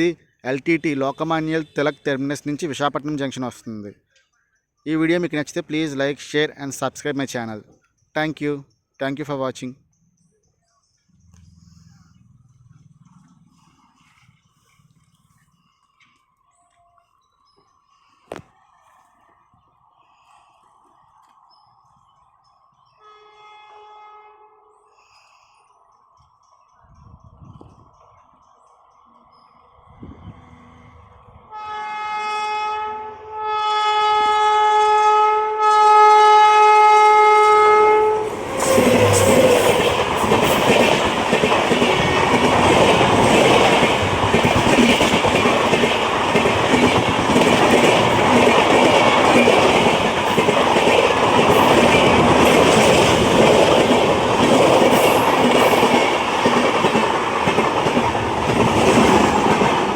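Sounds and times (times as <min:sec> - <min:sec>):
locomotive horn blasts: 0:23.0 - 0:24.9, 0:31.5 - 0:39.4
train wheels clattering over rails: 0:38.3 - 0:59.9.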